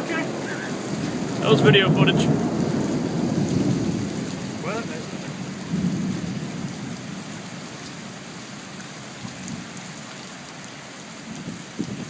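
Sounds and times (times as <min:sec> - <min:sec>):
low thunder rumble: 0:00.0 - 0:08.5
heavy rain falling: 0:00.0 - 0:12.0.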